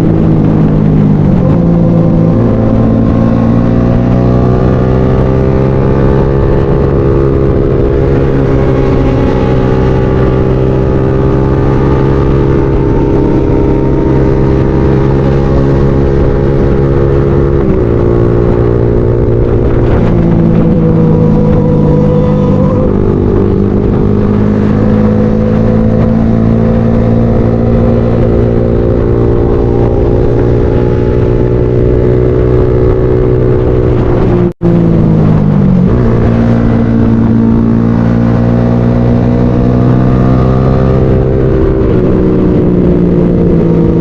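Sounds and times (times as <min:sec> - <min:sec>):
motorcycle engine while riding: 0:00.0 - 0:44.0.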